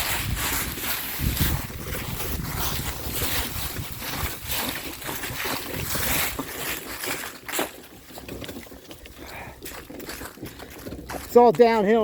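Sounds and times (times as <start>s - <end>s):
rushing noise of movement: 0.0s - 6.9s
wind buffeting microphone: 0.0s - 7.3s.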